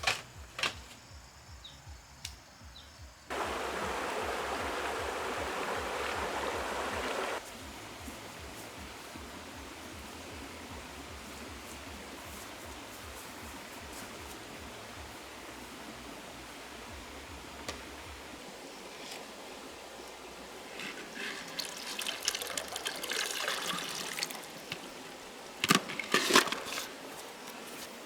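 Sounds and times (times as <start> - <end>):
water splashing and trickling: 3.3 - 28.0.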